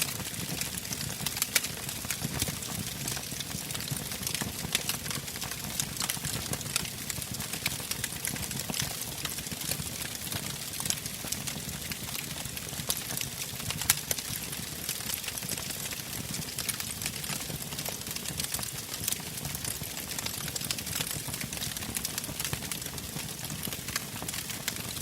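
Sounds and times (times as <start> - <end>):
wood fire crackling and popping: 0.0 - 25.0.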